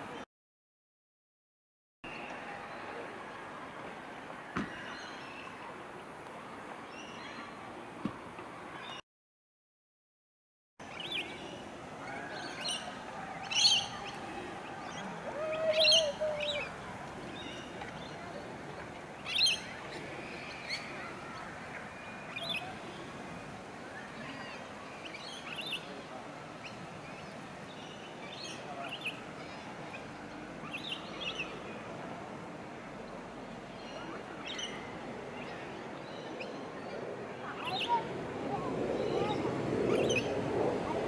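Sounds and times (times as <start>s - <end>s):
faint outdoor background: 2.0s - 9.0s, 10.8s - 41.0s
wild birds chirping: 10.9s - 23.0s.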